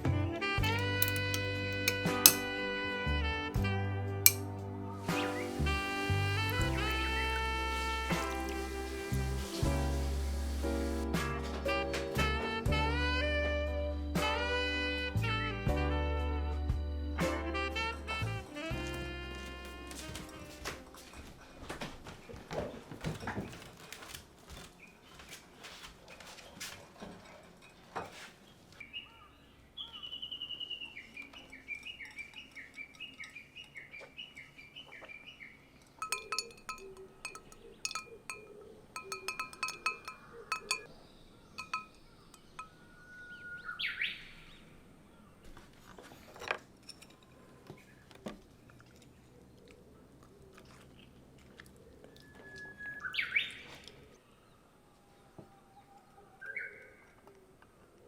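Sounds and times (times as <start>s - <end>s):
rising whistled bird calls: 42.4s - 44.6s, 52.2s - 53.8s, 55.6s - 57.1s.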